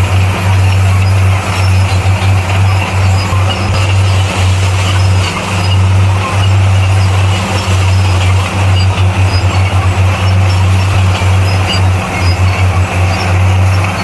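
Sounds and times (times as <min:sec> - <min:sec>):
bulldozer diesel engine droning: 0:00.0 - 0:14.0.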